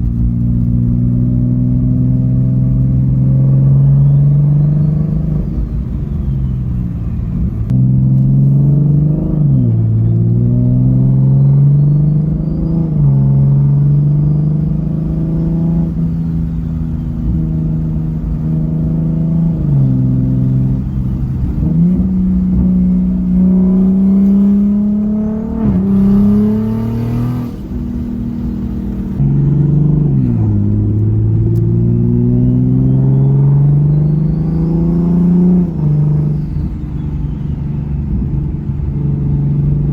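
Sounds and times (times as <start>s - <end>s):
car engine revving: 0.0s - 39.9s
turbo whistle: 31.7s - 38.1s.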